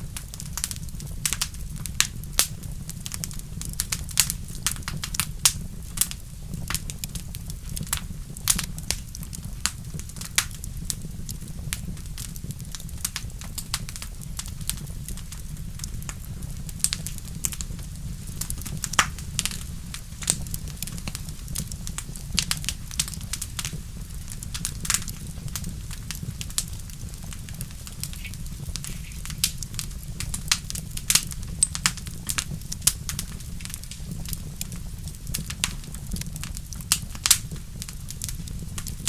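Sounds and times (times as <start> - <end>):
sharp pops from fire: 0.0 - 39.0
wood fire crackling: 0.0 - 39.0
steady low rumble: 14.2 - 35.4.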